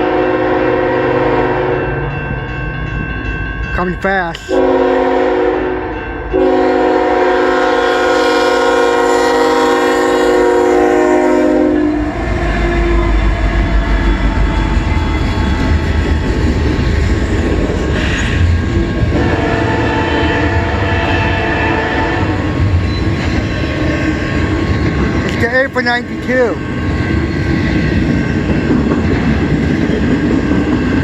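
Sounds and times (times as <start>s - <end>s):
locomotive air horn: 0.0s - 1.9s, 4.5s - 13.3s, 19.1s - 22.4s
passing train rumble: 0.0s - 31.0s.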